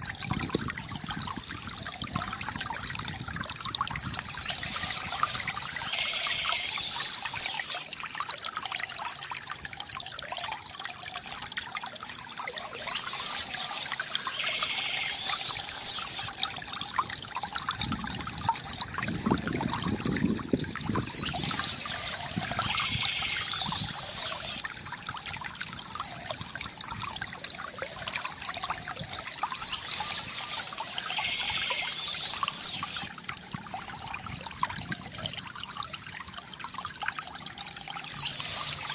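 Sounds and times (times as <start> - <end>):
stream water trickling: 0.0 - 38.9
water gurgling: 0.0 - 38.9
birds singing: 4.0 - 7.8, 12.6 - 16.4, 21.0 - 24.6, 29.4 - 33.1, 37.9 - 38.9.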